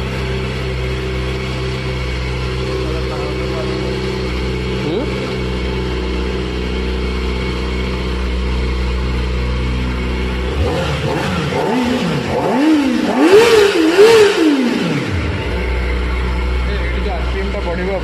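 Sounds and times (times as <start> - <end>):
motorcycle engine idling and revving: 0.0 - 18.0.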